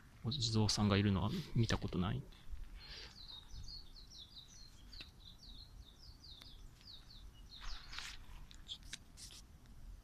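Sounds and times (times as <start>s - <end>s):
small bird chirping: 0.2s - 9.4s
brief rustle: 7.6s - 9.5s.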